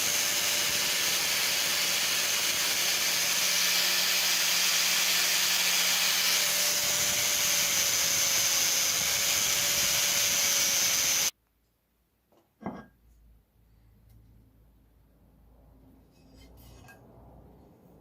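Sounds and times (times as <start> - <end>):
power tool scraping: 0.0 - 11.3.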